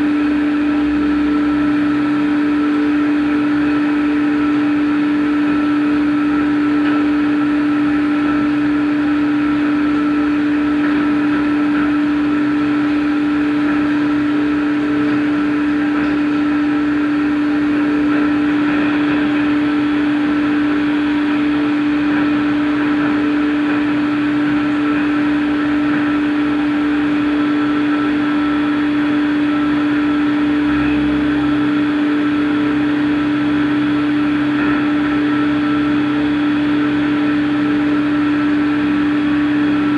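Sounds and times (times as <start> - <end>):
cnc machine running: 0.0 - 39.9
loud unchanging machine tone: 11.0 - 37.8.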